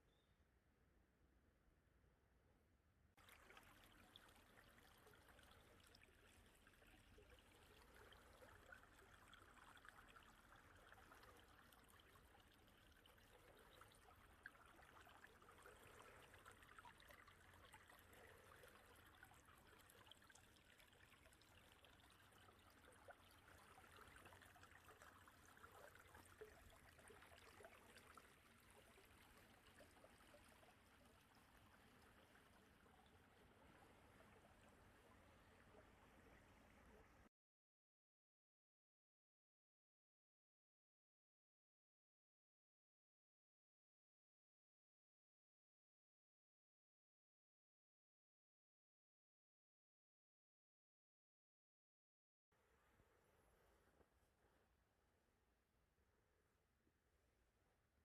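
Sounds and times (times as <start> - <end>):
stream rushing and trickling: 3.2 - 37.3.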